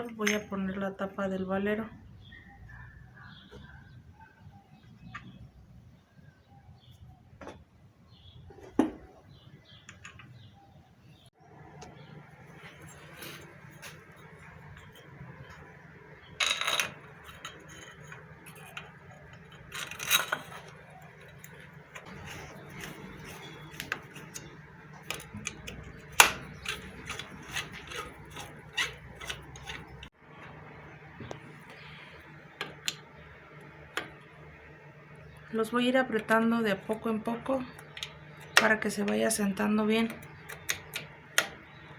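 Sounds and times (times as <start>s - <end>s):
metal parts clinking: 16.4s - 30.1s.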